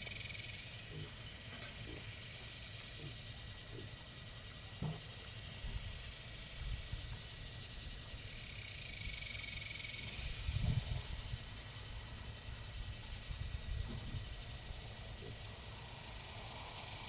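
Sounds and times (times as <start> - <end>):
pigs grunting: 0.9 - 2.1, 2.9 - 4.0.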